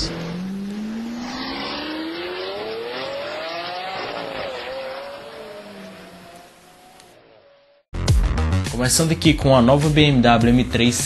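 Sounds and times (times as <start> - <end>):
car engine accelerating: 0.0 - 7.9.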